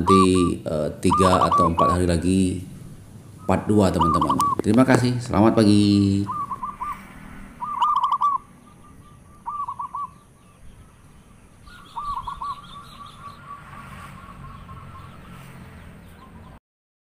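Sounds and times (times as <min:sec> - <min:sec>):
bird calling in quick runs: 0:00.0 - 0:02.1, 0:03.4 - 0:05.2, 0:06.2 - 0:07.0, 0:07.6 - 0:10.3
faint high bird chirps: 0:00.0 - 0:02.1, 0:03.4 - 0:04.7, 0:06.2 - 0:07.0, 0:07.6 - 0:16.6.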